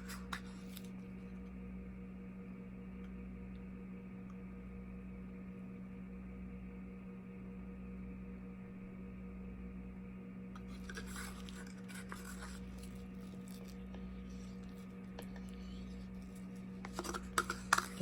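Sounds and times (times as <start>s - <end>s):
plastic cups clicking and scraping: 0.0s - 0.9s, 10.6s - 18.0s
steady low hum: 0.0s - 18.0s.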